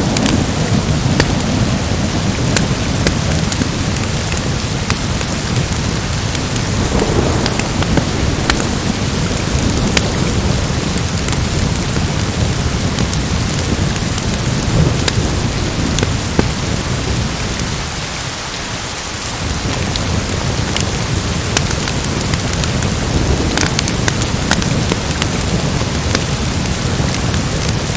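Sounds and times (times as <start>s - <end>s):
rolling thunder rumble: 0.0s - 18.3s, 19.4s - 27.9s
heavy rain hissing: 0.0s - 27.9s
sharp crackles: 0.1s - 17.7s.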